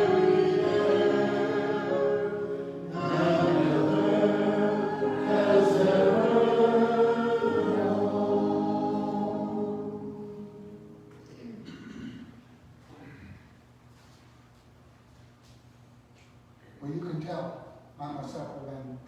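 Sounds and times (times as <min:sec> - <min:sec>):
voices singing a hymn: 0:00.0 - 0:11.1.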